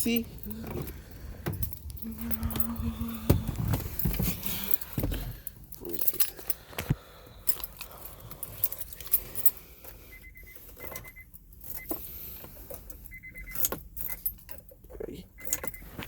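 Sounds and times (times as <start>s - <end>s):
key ring jangling: 0.0s - 6.7s, 7.4s - 9.6s, 10.7s - 12.0s, 12.7s - 14.8s, 15.4s - 15.8s
short electronic beeps: 10.1s - 11.3s, 15.4s - 15.9s.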